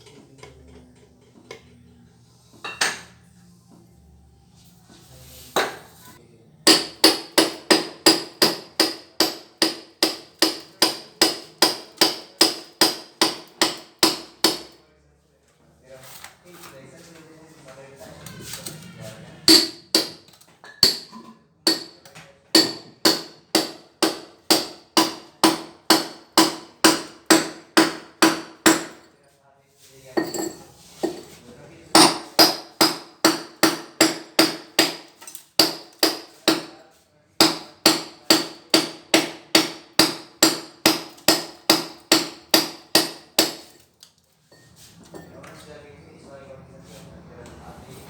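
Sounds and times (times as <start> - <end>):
hammer striking steel chisel: 6.6 - 14.8, 19.5 - 29.1, 32.0 - 36.8, 37.4 - 43.8.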